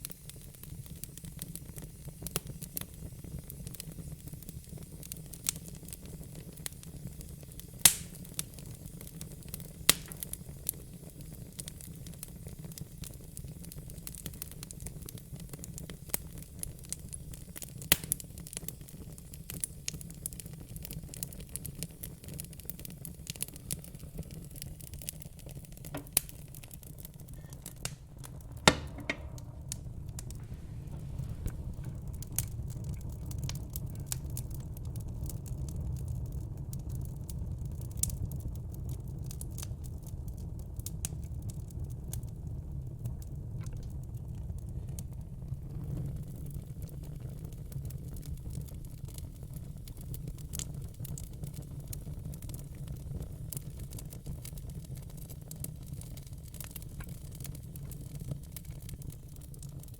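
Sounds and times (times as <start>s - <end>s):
wood fire crackling: 0.0s - 59.9s
steady low rumble: 27.0s - 35.4s
sharp loud pops: 27.6s - 32.0s.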